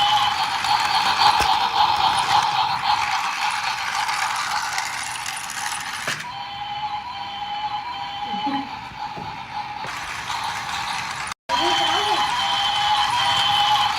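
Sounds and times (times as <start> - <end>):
small geared mechanism whirring: 0.0 - 6.3.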